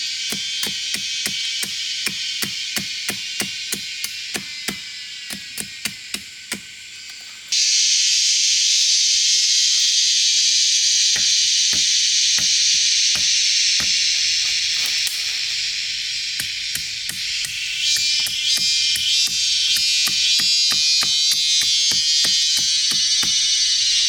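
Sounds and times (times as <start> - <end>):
sharp knocks: 11.2 - 14.2.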